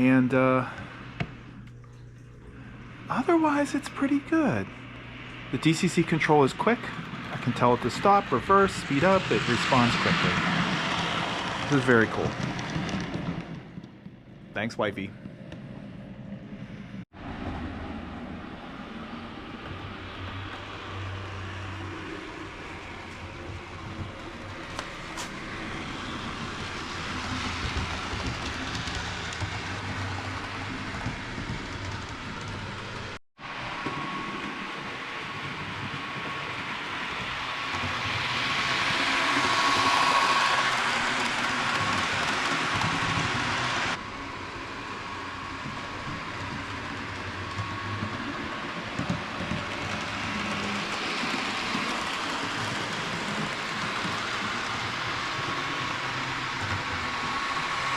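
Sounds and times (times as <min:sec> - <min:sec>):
wheels clicking on track: 0:05.6 - 0:14.0, 0:18.9 - 0:33.2, 0:33.8 - 0:57.9
model train motor whirring: 0:36.2 - 0:57.9.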